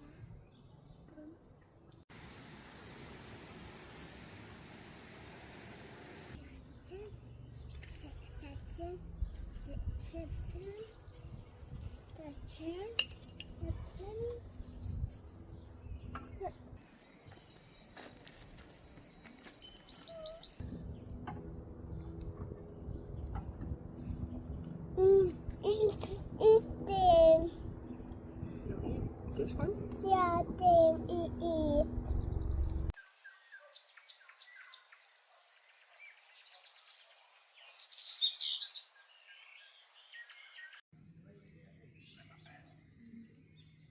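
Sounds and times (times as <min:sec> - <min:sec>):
crickets chirping: 0:14.1 - 0:29.8
low rumbling noise: 0:20.6 - 0:32.9
songbirds chirping and singing: 0:32.0 - 0:43.9.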